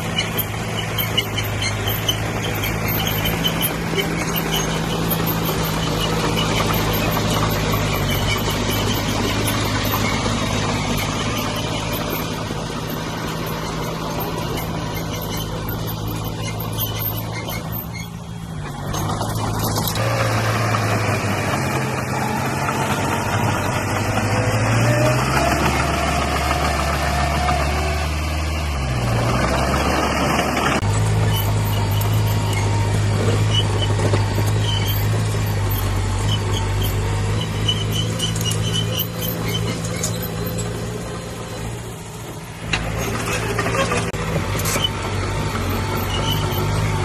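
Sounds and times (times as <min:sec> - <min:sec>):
high squeal: 0:00.0 - 0:28.5, 0:29.3 - 0:41.7, 0:43.0 - 0:45.0, 0:45.6 - 0:47.0
heavy diesel engine running: 0:00.0 - 0:47.0.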